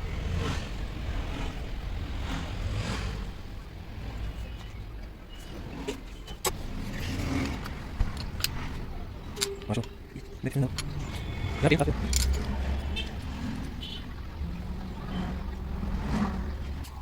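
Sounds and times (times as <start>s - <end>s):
vehicle motor rumbling: 0.0s - 17.0s.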